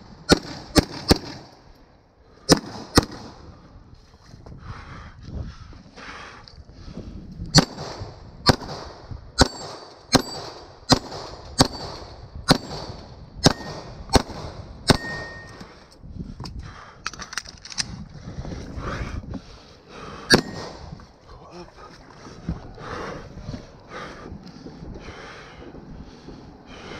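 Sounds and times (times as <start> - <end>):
gunshots: 0.0 - 1.5, 2.5 - 3.4, 7.6 - 15.4, 20.3 - 20.9.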